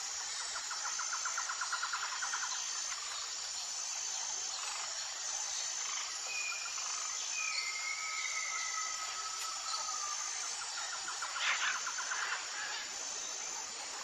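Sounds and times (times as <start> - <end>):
insects chorus: 0.0 - 14.0
long whistled bird notes: 6.4 - 10.2.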